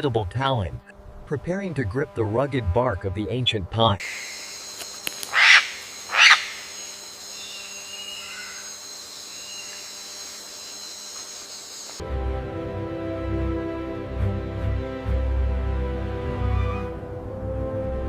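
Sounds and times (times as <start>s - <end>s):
music: 0.8s - 4.0s, 12.0s - 18.0s
faint chirps: 4.0s - 12.0s
steady hiss: 4.0s - 12.0s
eagle screeching: 5.2s - 9.9s, 16.4s - 17.0s.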